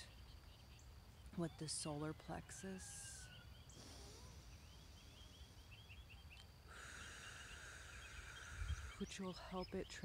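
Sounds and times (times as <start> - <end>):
faint birdsong: 0.0 - 10.0
steady high hiss: 3.6 - 9.3.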